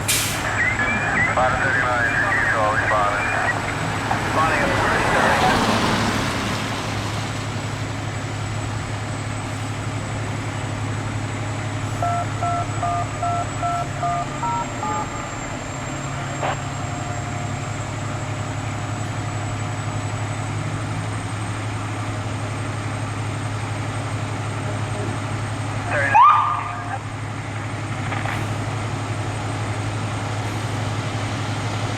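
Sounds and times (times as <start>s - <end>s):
vehicle engine humming: 0.0s - 31.9s
two-pitch electronic beeps: 12.0s - 15.4s.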